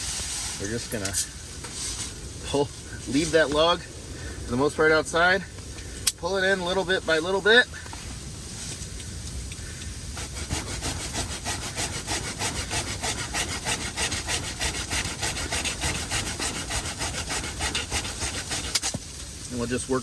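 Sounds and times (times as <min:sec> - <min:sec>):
hand saw cutting wood: 0:10.2 - 0:19.0.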